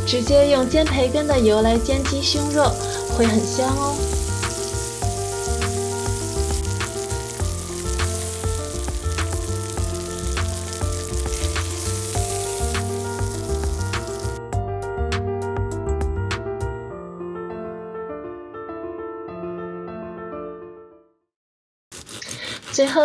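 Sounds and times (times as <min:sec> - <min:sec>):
chicken sizzling in a frying pan: 0:00.0 - 0:14.4
soft background music: 0:00.0 - 0:17.1.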